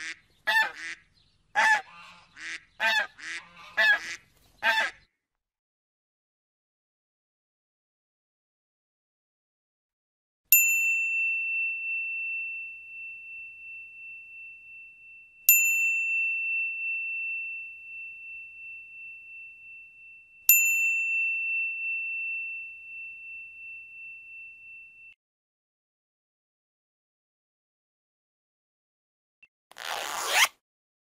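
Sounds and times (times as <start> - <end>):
small hand bell ringing: 10.5 - 25.2.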